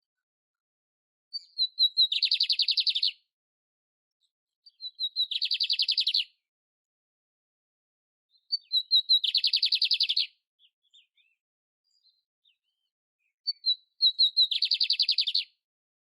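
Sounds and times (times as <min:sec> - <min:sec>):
canary singing trills: 0:01.3 - 0:03.2, 0:04.6 - 0:06.4, 0:08.3 - 0:15.6.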